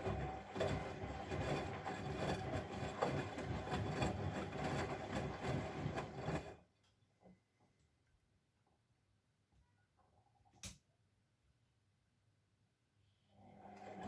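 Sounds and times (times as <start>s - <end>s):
washing machine motor running: 0.0s - 6.7s, 13.4s - 14.0s.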